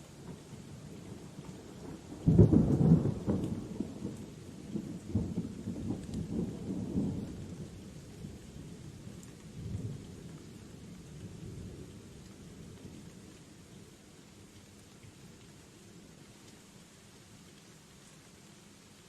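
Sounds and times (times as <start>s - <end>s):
steady rain: 0.0s - 19.0s
thunder rumbling: 1.9s - 7.7s.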